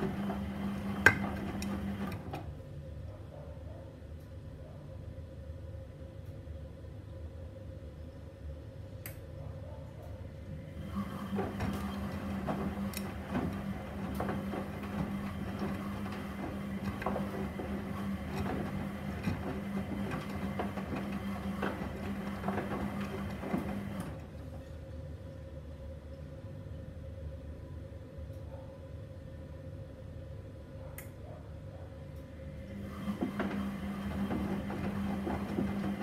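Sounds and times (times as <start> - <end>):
laundry and water sloshing: 0.0 - 2.4, 10.7 - 24.8, 32.7 - 36.0
washing machine motor hum: 0.0 - 3.0, 10.4 - 25.2, 32.2 - 36.0
low background hum: 0.0 - 33.6.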